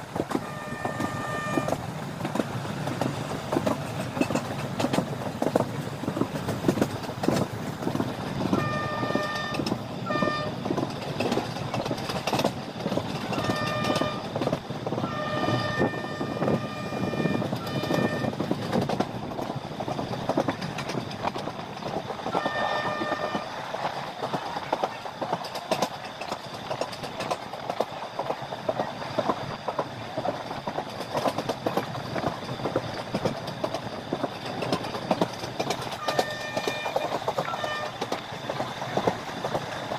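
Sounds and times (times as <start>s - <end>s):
train wheel rumble and clatter: 0.0s - 39.9s
locomotive horn blasts: 0.3s - 1.8s, 8.5s - 10.6s, 13.4s - 14.4s, 15.0s - 18.4s, 22.3s - 23.5s, 36.0s - 38.1s.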